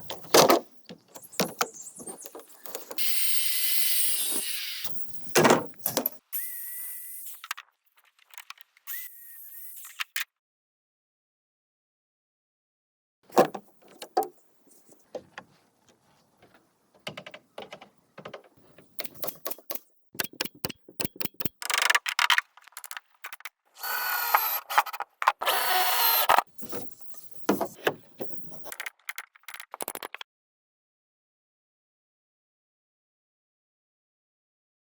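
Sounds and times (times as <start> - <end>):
bamboo clicks and knocks: 15.0 - 23.5.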